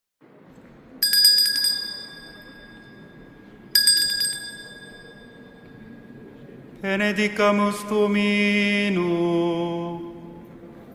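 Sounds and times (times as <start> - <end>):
hand bells ringing: 1.0 - 5.9.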